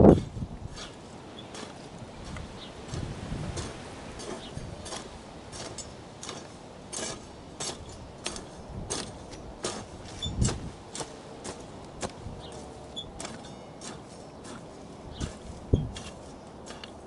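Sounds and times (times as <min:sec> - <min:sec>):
garden hoe chopping soil: 0:00.1 - 0:17.0.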